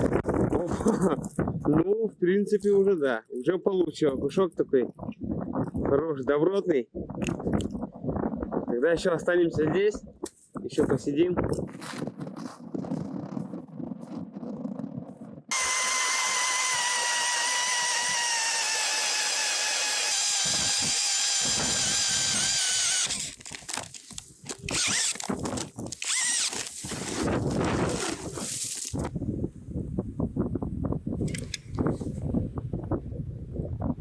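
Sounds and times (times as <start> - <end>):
cordless drill motor whine: 15.5 - 23.5, 24.7 - 28.0.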